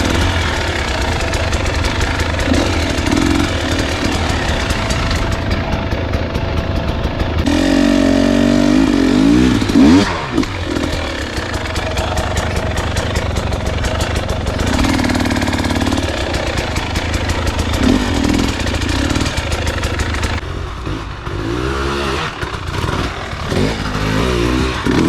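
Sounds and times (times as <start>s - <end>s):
rapid clicking and clatter: 0.0s - 7.9s, 9.5s - 20.4s
dirt bike engine running: 0.0s - 25.0s.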